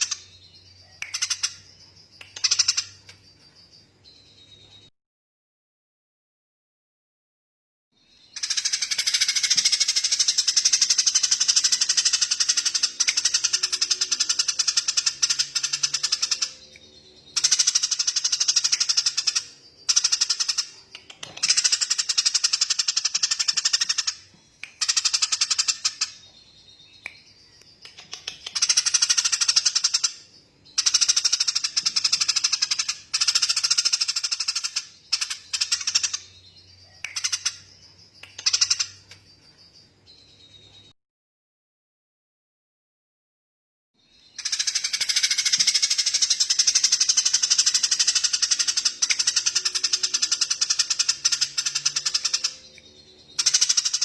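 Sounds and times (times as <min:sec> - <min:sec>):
songbird rattling trills: 0:17.3 - 0:26.3, 0:44.3 - 0:52.7, 0:53.3 - 0:54.0.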